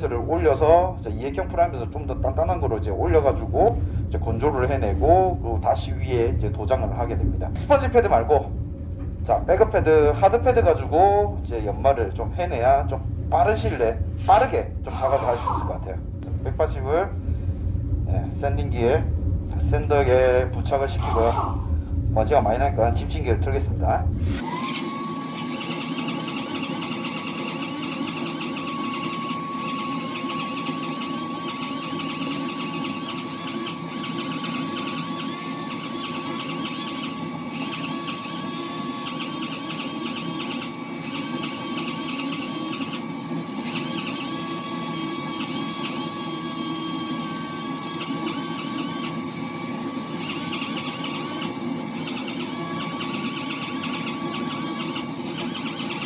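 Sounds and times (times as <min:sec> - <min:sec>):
dust extractor hum: 0:00.0 - 0:56.0
power sander whining: 0:09.1 - 0:16.0.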